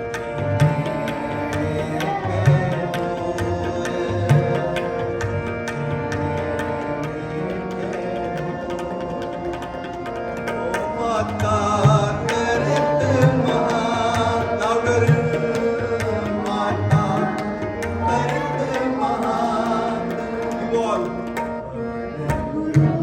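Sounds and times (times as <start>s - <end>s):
tabla drumming: 0.0s - 23.0s
person singing: 0.6s - 5.0s, 22.2s - 23.0s.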